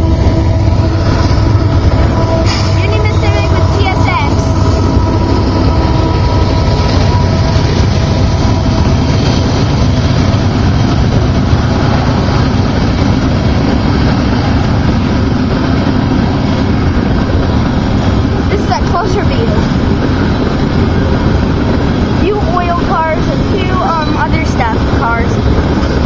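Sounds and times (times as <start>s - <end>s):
crossing bells ringing: 0.0s - 9.3s
freight train wheels on rails: 0.0s - 26.0s.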